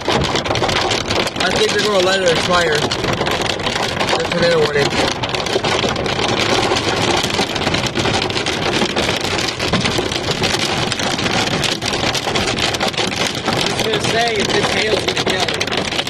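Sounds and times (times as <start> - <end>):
hail and rain pelting a vehicle: 0.0 - 16.0.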